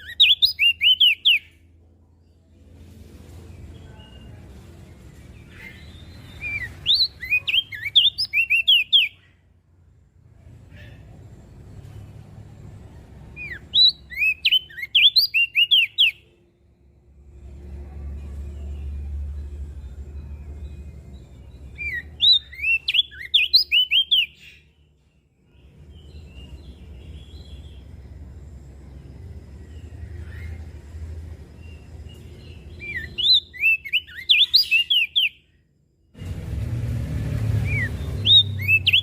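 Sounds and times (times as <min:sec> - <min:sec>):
bird singing whistled notes: 0:00.0 - 0:01.6, 0:05.4 - 0:09.4, 0:13.4 - 0:16.4, 0:18.6 - 0:24.8, 0:29.6 - 0:35.6, 0:37.5 - 0:39.0
low background rumble: 0:16.2 - 0:22.7.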